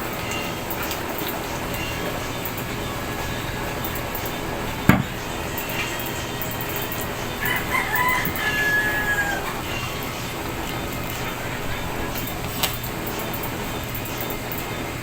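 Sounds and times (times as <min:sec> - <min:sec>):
rooster crowing: 0:06.4 - 0:10.5.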